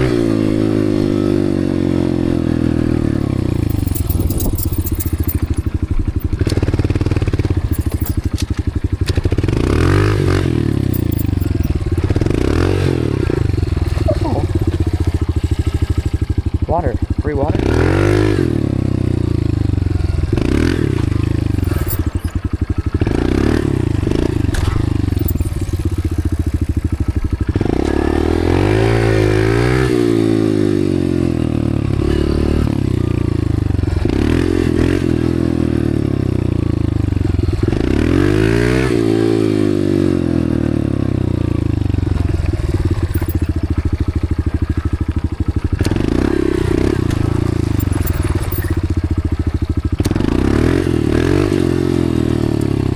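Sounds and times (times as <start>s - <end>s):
dirt bike engine revving: 9.0s - 18.8s, 49.8s - 52.9s.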